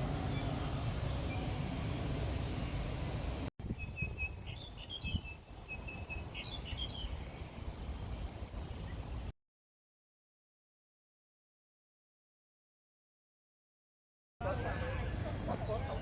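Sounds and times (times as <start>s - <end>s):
songbird singing: 0.0s - 9.3s, 14.4s - 16.0s.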